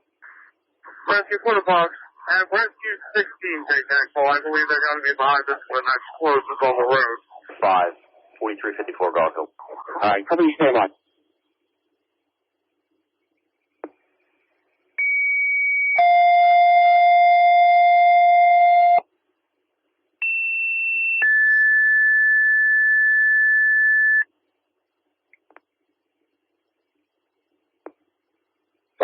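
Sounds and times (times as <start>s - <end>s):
radio channel hiss: 0.2s - 11.0s.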